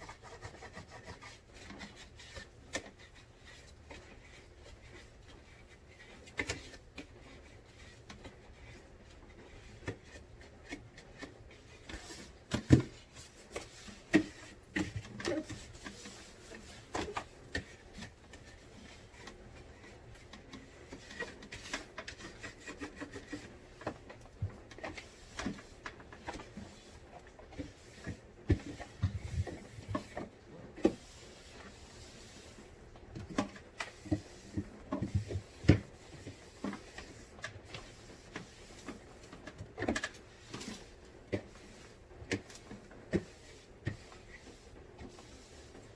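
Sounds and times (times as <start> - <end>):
rubbing and scrubbing: 0.0 - 45.9.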